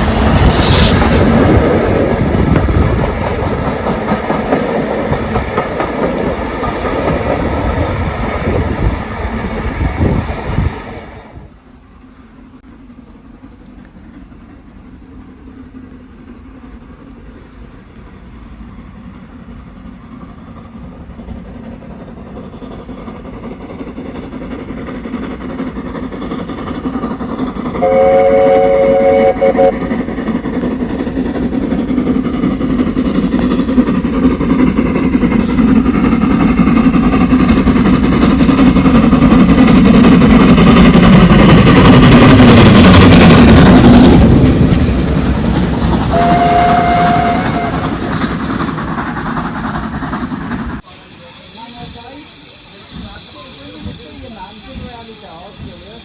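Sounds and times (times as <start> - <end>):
steam train rumbling: 0.0 - 56.0
train whistle: 27.8 - 29.9, 46.1 - 48.1.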